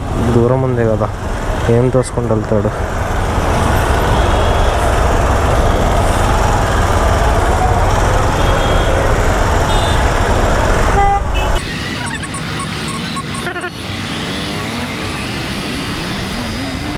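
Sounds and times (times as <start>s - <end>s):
road traffic: 0.0s - 16.9s
vehicle horns tooting: 3.5s - 14.4s.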